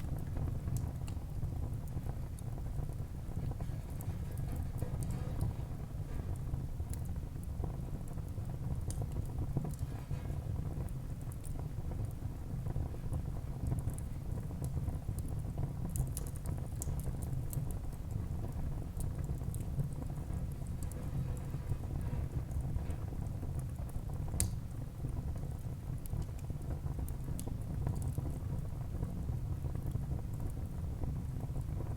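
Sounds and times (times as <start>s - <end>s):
low fire rumble: 0.0s - 31.9s
wood fire crackling and popping: 0.0s - 31.9s.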